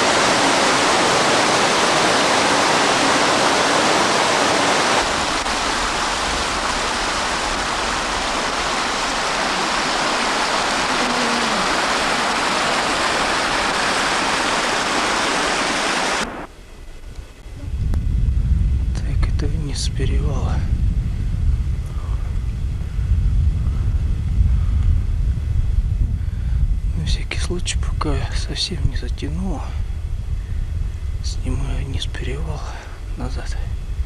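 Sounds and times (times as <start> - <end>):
low rumble: 0.0 - 14.7, 16.2 - 34.0
mountain stream rushing: 0.0 - 16.5.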